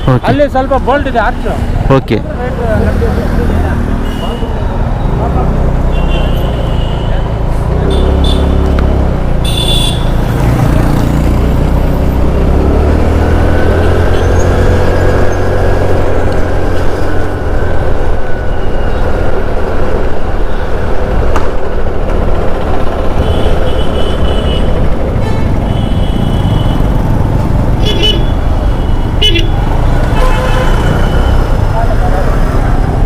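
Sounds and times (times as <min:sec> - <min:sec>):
motorcycle engine accelerating: 0:10.2 - 0:17.6.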